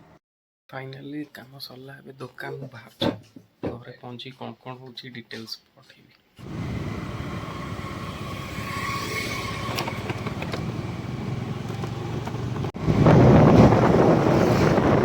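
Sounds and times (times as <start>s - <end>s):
vehicle engine running: 6.4s - 14.2s
road noise: 6.4s - 15.0s
wind on microphone: 12.8s - 15.0s.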